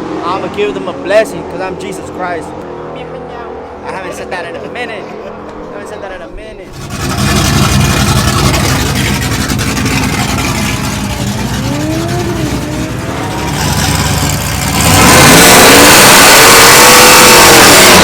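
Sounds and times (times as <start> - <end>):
racing car engine revving: 6.7 - 18.0.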